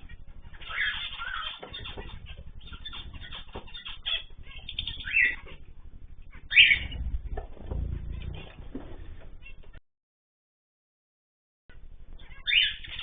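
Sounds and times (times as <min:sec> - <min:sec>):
loud bird calls: 0:00.0 - 0:09.6, 0:12.2 - 0:13.0.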